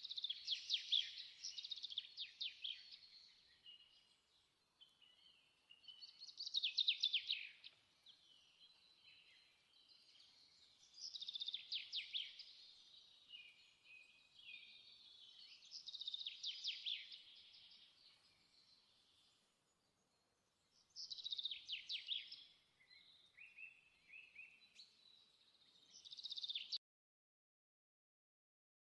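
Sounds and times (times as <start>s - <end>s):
soft bird chirps: 0.0s - 26.8s.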